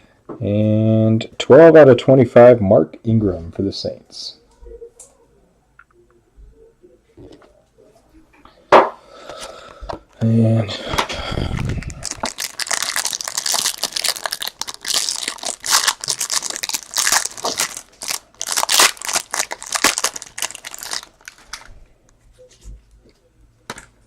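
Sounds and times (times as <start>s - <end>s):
plastic packaging crinkling and tearing: 11.4s - 21.8s.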